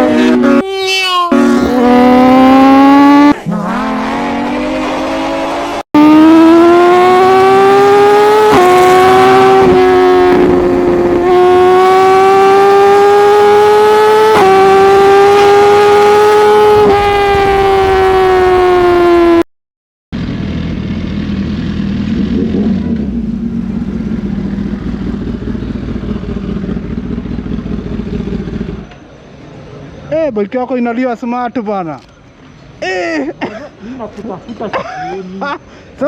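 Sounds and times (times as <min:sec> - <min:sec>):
motorcycle engine at high revs: 0:00.0 - 0:00.6, 0:01.3 - 0:19.4, 0:20.2 - 0:28.9.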